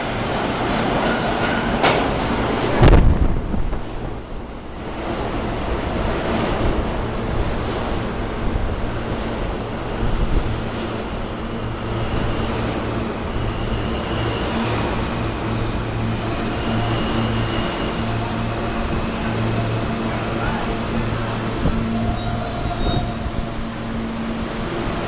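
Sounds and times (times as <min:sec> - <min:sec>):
subway train rushing rumble: 0:00.0 - 0:25.0
faint high whine: 0:11.2 - 0:25.0.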